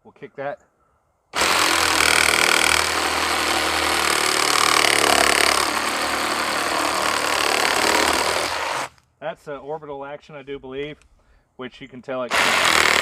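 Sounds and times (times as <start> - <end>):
reciprocating saw cutting wood: 1.4 - 9.0, 12.3 - 13.0.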